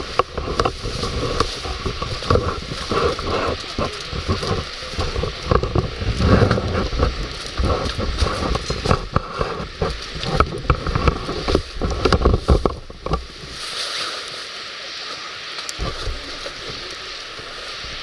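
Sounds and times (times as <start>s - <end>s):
wood fire crackling and popping: 0.0s - 13.5s
wind buffeting microphone: 0.0s - 13.7s.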